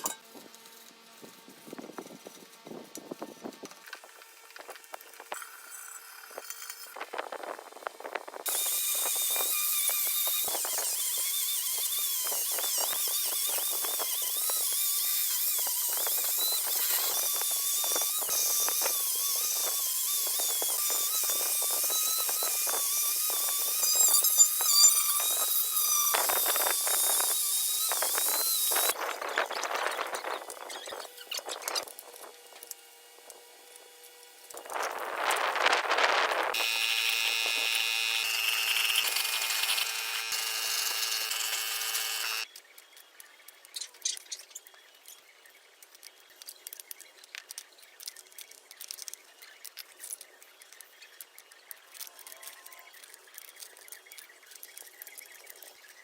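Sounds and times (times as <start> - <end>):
power tool on metal: 0.0 - 42.5.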